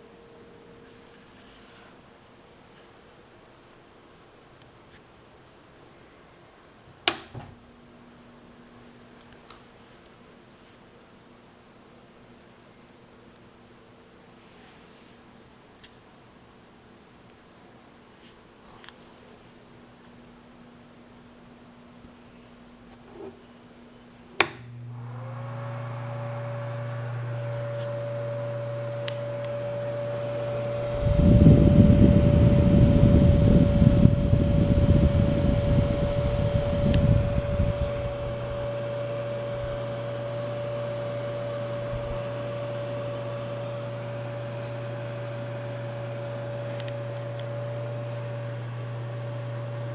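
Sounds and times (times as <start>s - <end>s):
switch clicking: 7.1s - 7.3s, 24.4s - 24.8s
heater fan motor humming: 23.8s - 49.9s
low irregular rumble: 27.9s - 42.5s.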